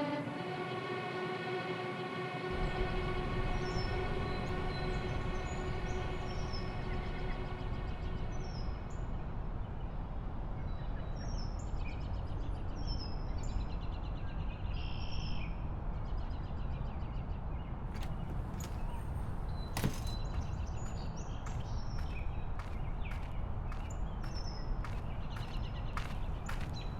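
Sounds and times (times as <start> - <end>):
small birds chirping: 17.9 - 26.9.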